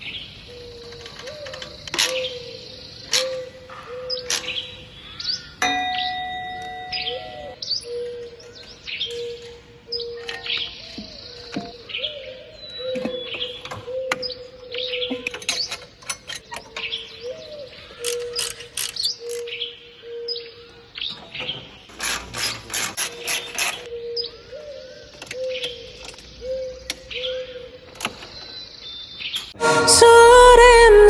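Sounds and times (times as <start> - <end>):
birds chirping: 0.0 - 31.0
sharp mechanical clicking: 18.0 - 19.4.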